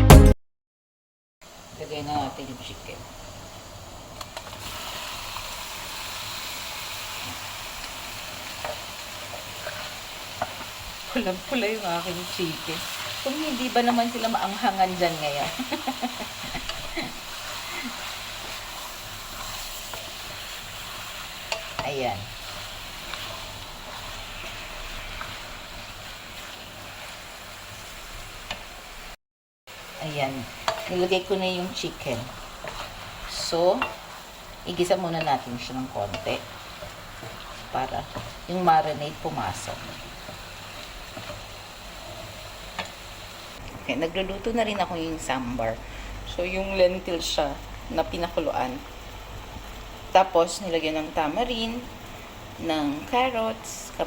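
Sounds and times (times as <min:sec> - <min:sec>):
chicken sizzling in a pan: 0:01.4 - 0:54.0.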